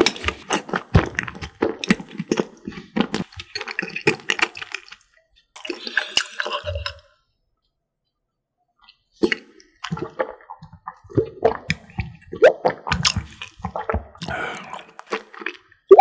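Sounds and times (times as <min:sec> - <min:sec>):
chewing soft pastry: 0:00.0 - 0:07.0, 0:12.8 - 0:15.9
gulping milk: 0:00.0 - 0:07.1, 0:09.2 - 0:15.8
wet mouth clicks: 0:13.0 - 0:16.0.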